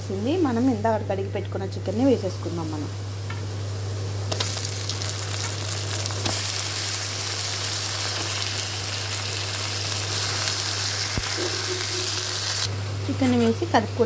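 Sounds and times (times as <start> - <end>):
chicken sizzling in hot oil: 3.5 - 12.8.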